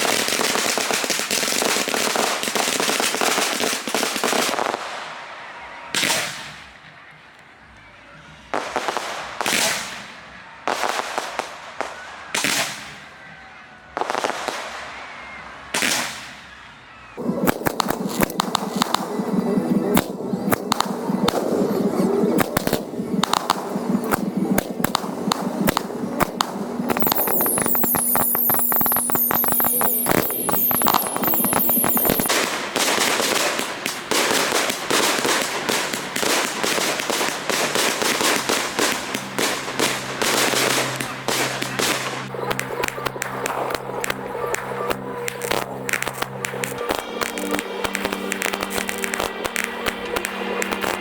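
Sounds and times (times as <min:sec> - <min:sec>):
whistling firework shells: 0:00.0 - 0:07.3, 0:08.5 - 0:51.0
fireworks bursts and crackling: 0:00.0 - 0:51.0
steady low tones: 0:17.2 - 0:51.0.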